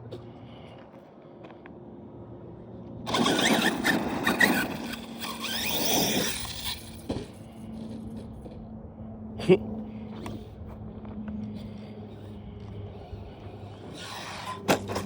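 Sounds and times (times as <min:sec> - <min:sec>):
rc car motor whine: 0:03.0 - 0:08.3, 0:12.9 - 0:15.0.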